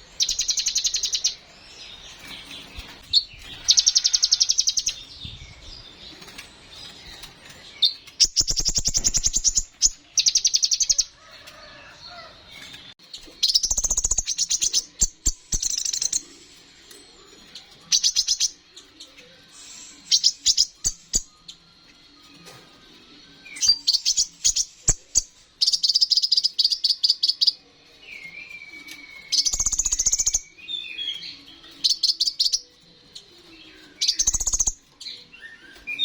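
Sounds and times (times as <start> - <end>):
sunbird trilled song: 0.0 - 11.1, 23.4 - 32.7, 33.6 - 36.0
sharp bird chips: 7.0 - 10.9, 13.4 - 16.2.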